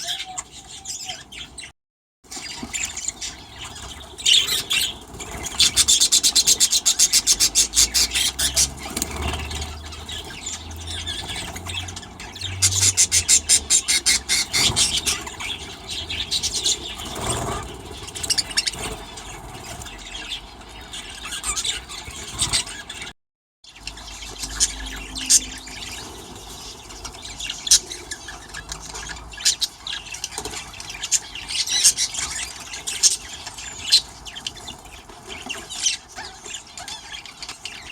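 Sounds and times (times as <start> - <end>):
budgerigars chirping and squealing: 0.0 - 1.7, 2.3 - 23.1, 23.7 - 37.9.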